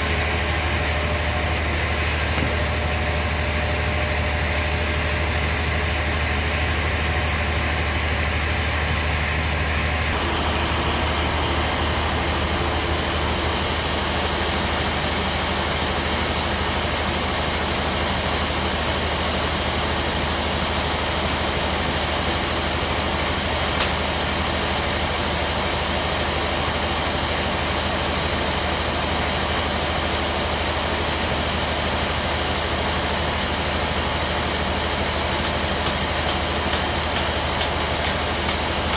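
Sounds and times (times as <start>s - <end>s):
bandsaw running: 10.0s - 17.6s, 33.9s - 38.9s.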